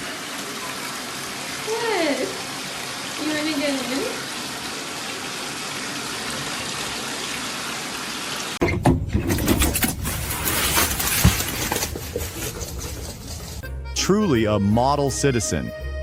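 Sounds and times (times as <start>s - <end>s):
water running from a tap: 0.0s - 8.6s
knocks and clattering: 8.6s - 13.6s.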